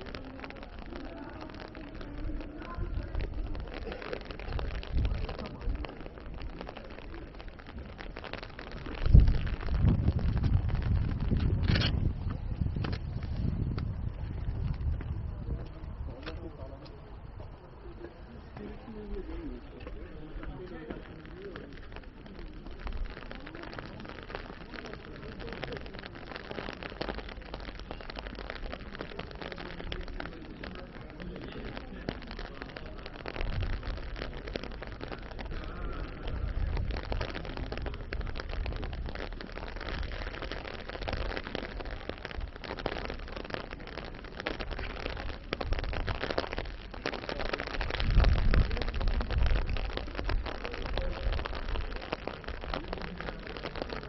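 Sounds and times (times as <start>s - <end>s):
low rumbles: 0.0s - 31.0s, 31.6s - 54.0s
rain pattering: 0.0s - 54.0s.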